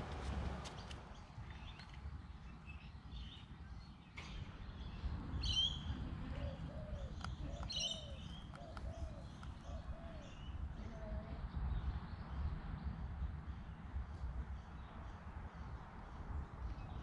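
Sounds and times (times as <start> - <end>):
birds chirping: 0.6 - 12.4.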